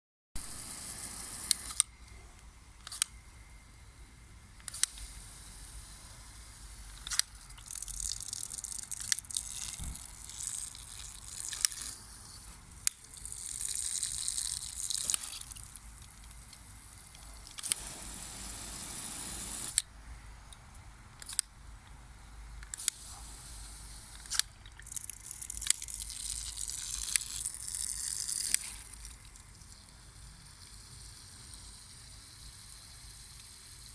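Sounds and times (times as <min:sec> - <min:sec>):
water hose spraying: 0:00.4 - 0:01.7, 0:17.6 - 0:19.8
sharp clicks: 0:04.6 - 0:05.1, 0:20.5 - 0:22.0.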